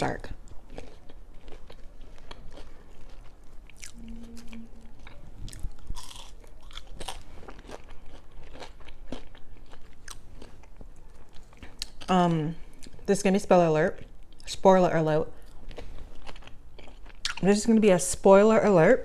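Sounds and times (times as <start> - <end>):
brief low hum: 3.8 - 6.0.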